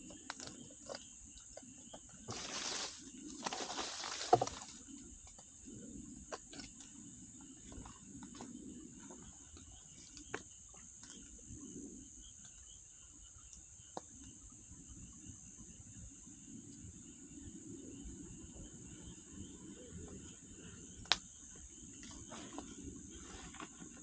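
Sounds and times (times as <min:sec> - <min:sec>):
rustle: 0:02.2 - 0:06.2.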